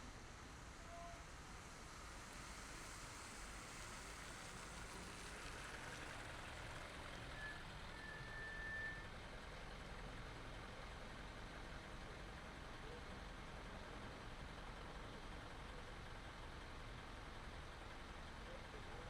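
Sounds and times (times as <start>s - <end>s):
car driving through city traffic: 0.0s - 19.0s.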